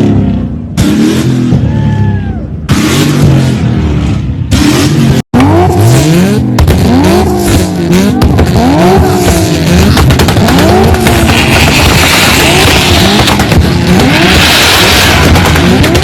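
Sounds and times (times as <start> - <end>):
car engines revving on limiter: 0.0 - 2.0, 2.6 - 16.0
sharp exhaust pops: 6.4 - 16.0.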